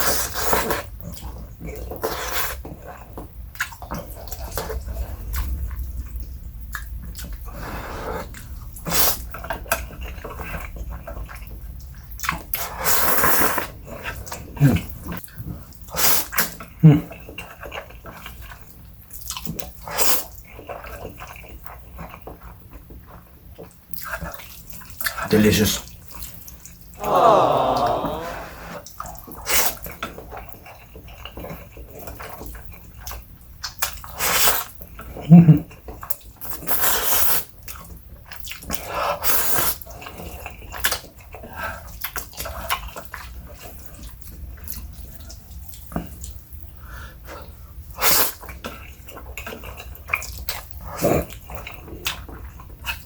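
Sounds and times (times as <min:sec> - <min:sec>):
wet chewing of noodles: 0:00.0 - 0:25.3, 0:28.8 - 0:53.0
wet noodle slurping: 0:36.5 - 0:37.8, 0:38.4 - 0:40.9.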